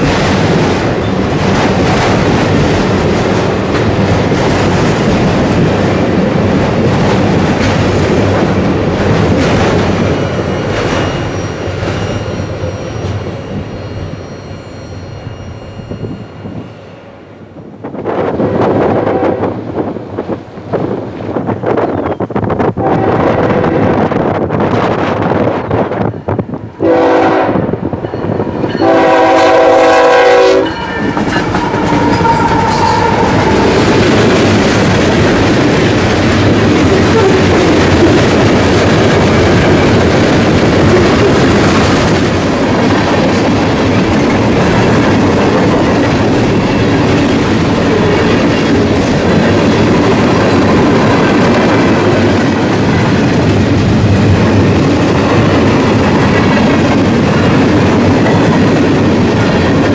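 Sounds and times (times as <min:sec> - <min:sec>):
train wheels rumbling on rail: 0:00.0 - 0:59.9
locomotive air horn: 0:19.0 - 0:19.5, 0:22.8 - 0:24.0, 0:26.8 - 0:27.7, 0:28.8 - 0:33.8.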